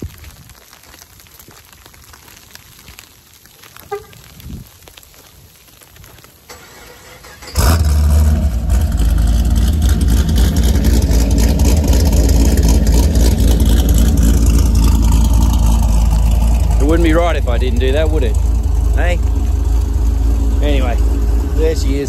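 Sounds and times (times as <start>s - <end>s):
falling ice patter: 0.0s - 20.0s
car engine cold start and idle: 6.5s - 22.0s.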